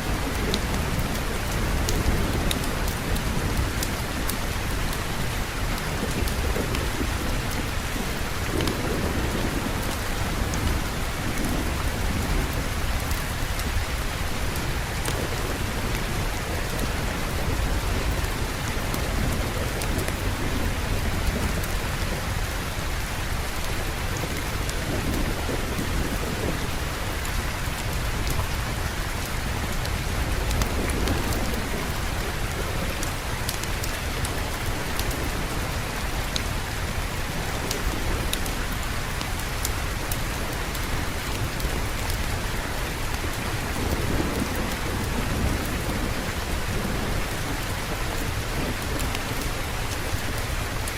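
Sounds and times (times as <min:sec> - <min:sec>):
heavy rain hissing: 0:00.0 - 0:50.9
low rolling thunder: 0:40.0 - 0:50.9.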